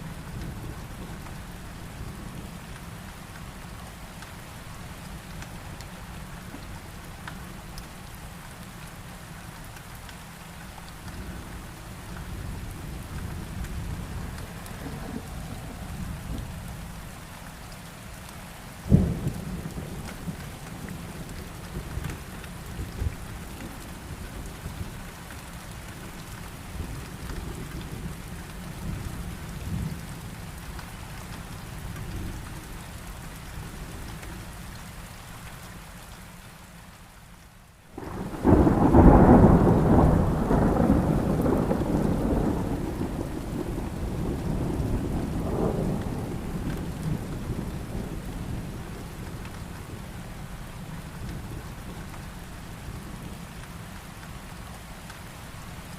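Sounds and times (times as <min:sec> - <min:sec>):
rain falling: 0:00.0 - 0:55.9
low rumbling thunder: 0:12.4 - 0:16.8, 0:18.8 - 0:24.9, 0:38.0 - 0:50.1
sharp thunder clap: 0:38.0 - 0:46.4
long roll of thunder: 0:38.0 - 0:50.1.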